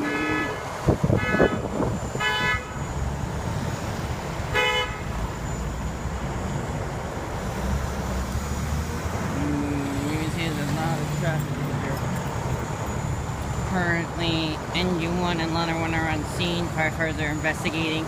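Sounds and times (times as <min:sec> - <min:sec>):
vehicle horn toots: 0:00.0 - 0:02.8, 0:04.5 - 0:05.2
street traffic rumble: 0:00.0 - 0:18.0.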